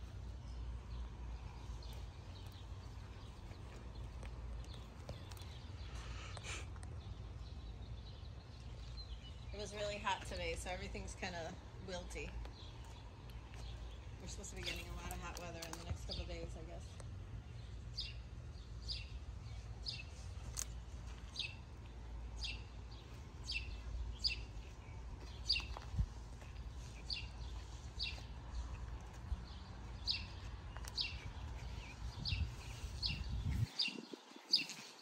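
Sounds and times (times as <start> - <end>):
low steady rumble: 0.0 - 33.7
bird chirping: 22.4 - 35.0.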